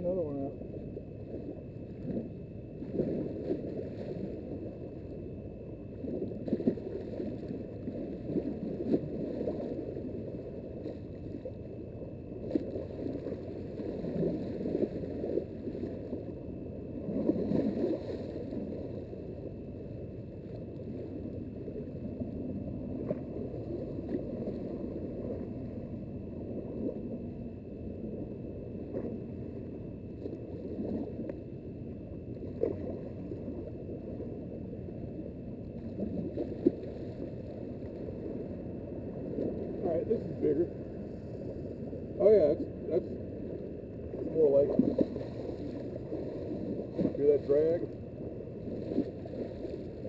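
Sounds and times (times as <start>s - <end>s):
small waves lapping: 0.0s - 5.2s, 5.9s - 25.8s, 35.6s - 50.0s.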